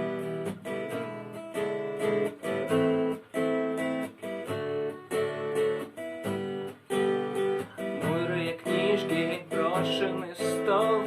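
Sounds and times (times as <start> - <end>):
acoustic guitar strumming: 0.0 - 11.0
person singing: 7.8 - 11.0.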